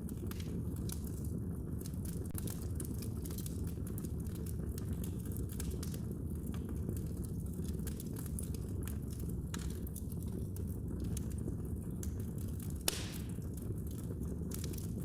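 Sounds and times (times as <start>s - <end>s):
fire crackling and popping: 0.0s - 15.0s
low rumble of fire: 0.0s - 15.0s.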